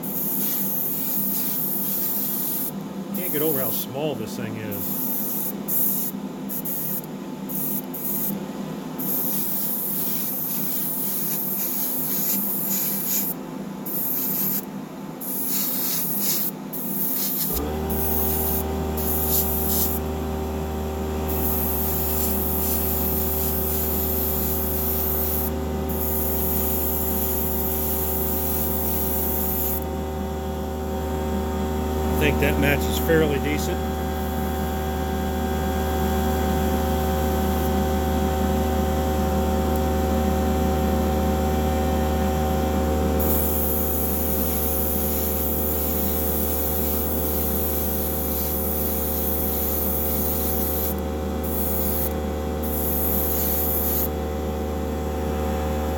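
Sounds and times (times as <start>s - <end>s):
airbrush hissing: 0.0s - 3.8s, 4.8s - 8.4s, 9.0s - 20.1s, 21.3s - 29.8s, 43.2s - 54.1s.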